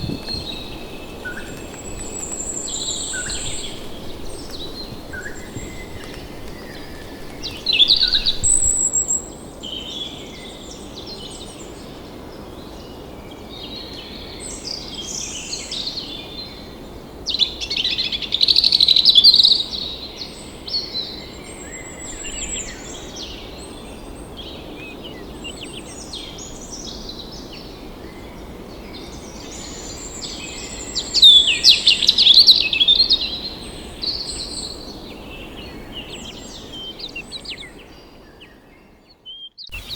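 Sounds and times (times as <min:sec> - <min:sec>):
background hiss: 0:00.0 - 0:09.2
birds calling and singing: 0:00.0 - 0:09.3, 0:29.2 - 0:39.9.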